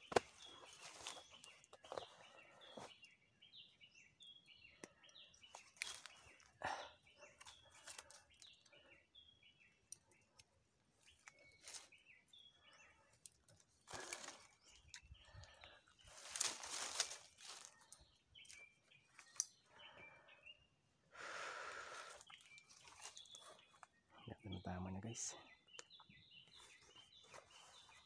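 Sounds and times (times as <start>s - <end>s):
dry leaves and twigs rustling: 0.0s - 3.1s, 4.8s - 8.9s, 9.9s - 19.9s, 21.9s - 24.0s, 26.4s - 28.0s
birds chirping: 0.0s - 28.0s.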